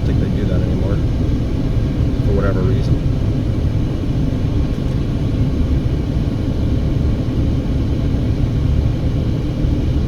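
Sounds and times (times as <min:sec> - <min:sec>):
car driving rumble: 0:00.0 - 0:06.0.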